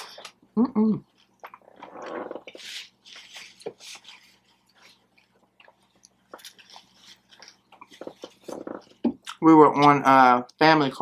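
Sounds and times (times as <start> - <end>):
person chewing food: 1.0 - 9.4.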